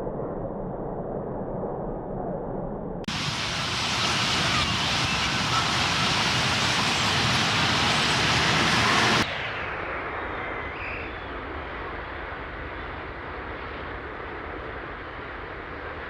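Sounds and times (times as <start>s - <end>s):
bird flock chattering: 3.1s - 9.2s.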